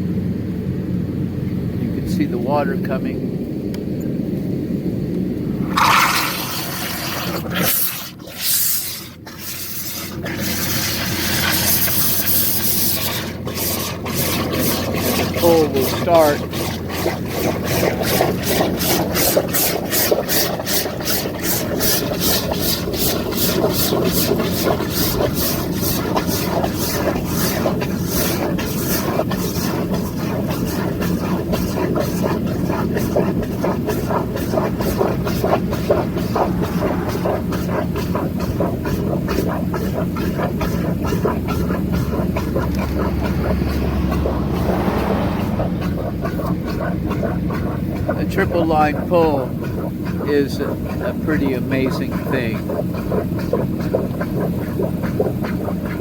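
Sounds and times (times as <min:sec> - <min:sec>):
drill rig engine hum: 0:05.1 - 0:56.0
water hissing: 0:05.6 - 0:56.0
rapid high ticking: 0:07.8 - 0:56.0.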